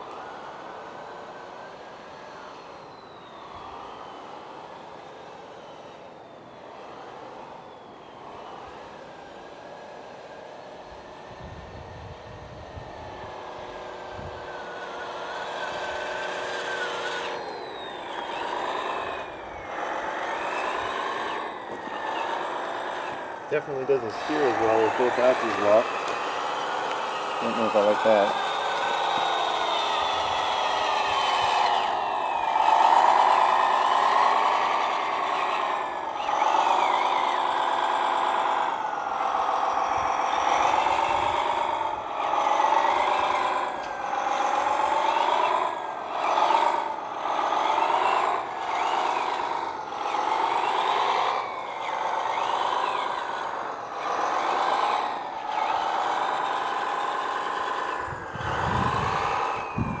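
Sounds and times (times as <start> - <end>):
electric motor whining: 0.0 - 60.0
thin high whines: 12.8 - 60.0.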